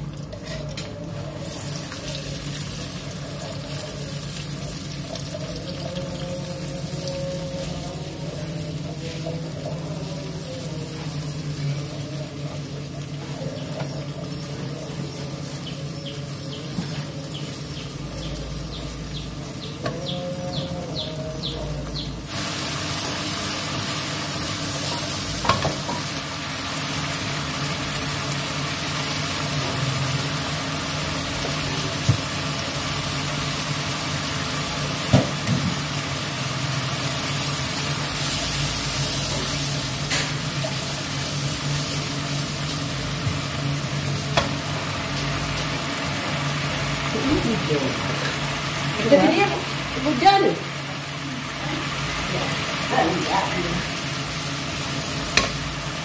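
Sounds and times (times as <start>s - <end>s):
spice paste sizzling in oil: 0.0s - 19.9s, 22.1s - 56.0s.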